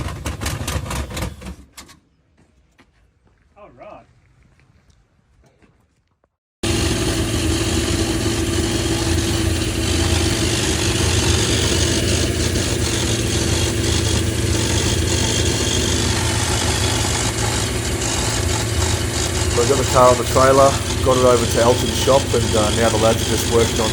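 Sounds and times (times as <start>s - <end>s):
car engine idling: 6.6s - 23.9s.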